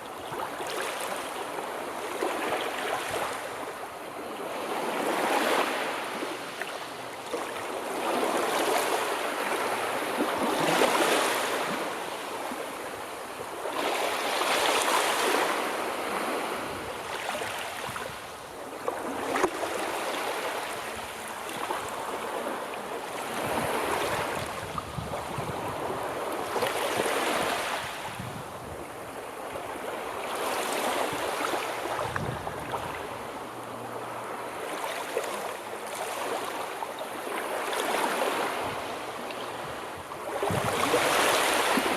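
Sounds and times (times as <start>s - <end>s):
sea waves washing onto shore: 0.0s - 41.9s.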